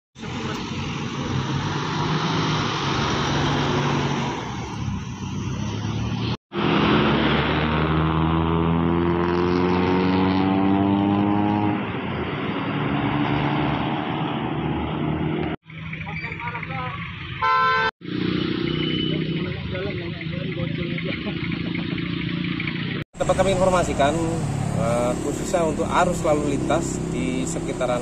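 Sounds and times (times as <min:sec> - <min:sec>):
car engine accelerating: 0:00.2 - 0:15.6
car engines in traffic: 0:00.2 - 0:28.0.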